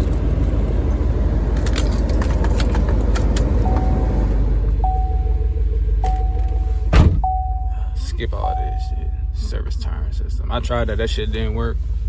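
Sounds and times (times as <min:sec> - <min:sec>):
car engine idling: 0:00.0 - 0:12.0
dashboard warning chime beeps: 0:03.6 - 0:09.3.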